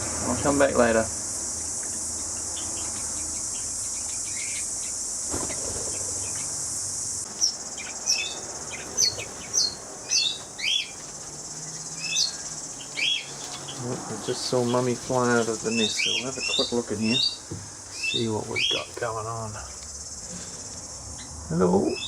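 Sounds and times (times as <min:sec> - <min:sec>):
high insect drone: 0:00.0 - 0:22.0
sharp bird chirps: 0:01.4 - 0:11.0, 0:11.6 - 0:18.9.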